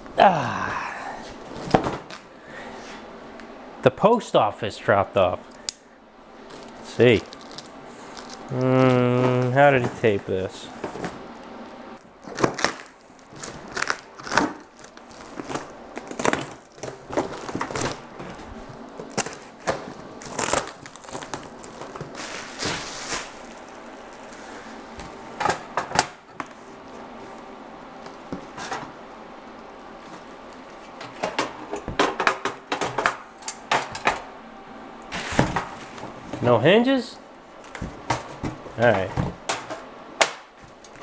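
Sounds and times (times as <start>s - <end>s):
wrapping rustling: 6.3s - 25.4s
packing tape ripping: 6.4s - 10.2s, 11.0s - 24.4s.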